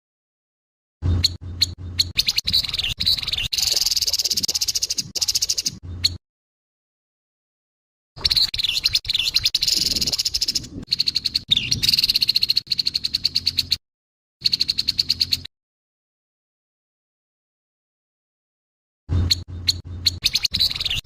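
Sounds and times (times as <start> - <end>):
bird harsh buzzy rattling call: 1.0 - 6.2, 8.2 - 13.8, 14.4 - 15.5, 19.1 - 21.0.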